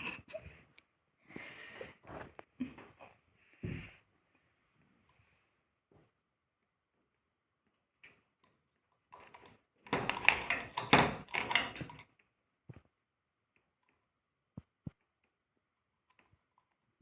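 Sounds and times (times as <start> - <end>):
faint clicks and taps: 9.2 - 15.4.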